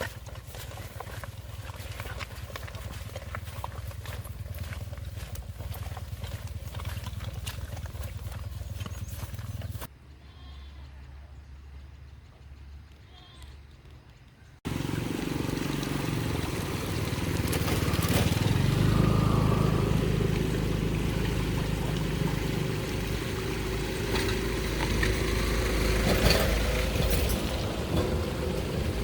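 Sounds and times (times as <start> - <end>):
engine running: 0.0 - 9.9, 14.6 - 29.0.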